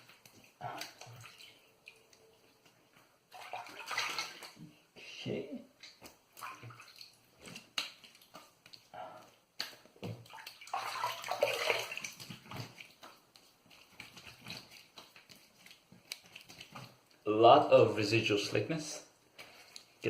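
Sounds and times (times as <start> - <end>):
water splashing in a sink: 0.0 - 4.8, 5.7 - 8.9, 9.5 - 17.2.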